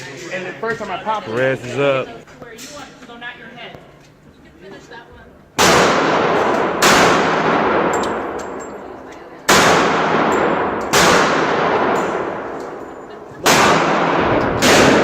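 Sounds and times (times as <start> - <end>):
pistol shots echoing: 5.6 - 8.8, 9.4 - 15.0
faint metallic clinks: 7.9 - 9.2.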